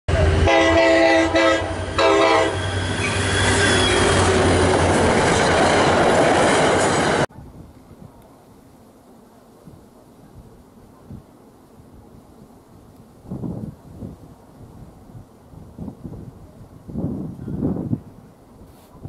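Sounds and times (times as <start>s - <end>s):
multi-note train horn: 0.1s - 4.8s
passing train rumble: 0.1s - 8.4s
faint wind noise: 4.3s - 19.0s.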